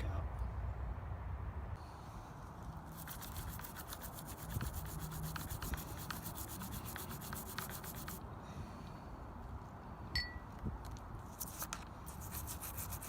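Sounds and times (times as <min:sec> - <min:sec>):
hand scrubbing metal: 0:02.9 - 0:08.2, 0:12.1 - 0:13.0.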